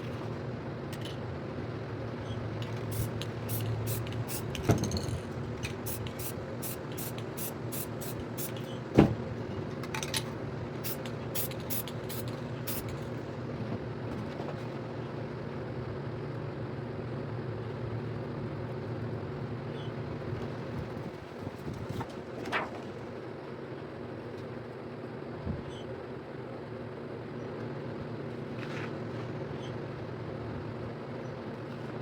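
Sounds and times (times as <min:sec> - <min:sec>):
steady low hum: 0:00.0 - 0:32.0
spray-paint can bursts: 0:02.7 - 0:05.1, 0:05.7 - 0:08.7, 0:10.8 - 0:13.0.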